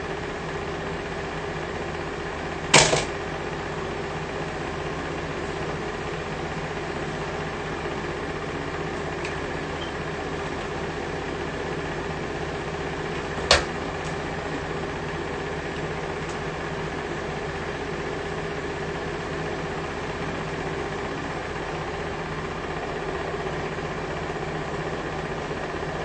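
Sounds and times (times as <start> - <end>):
steady mechanical hum: 0.0 - 26.0
sharp click: 2.8 - 3.1.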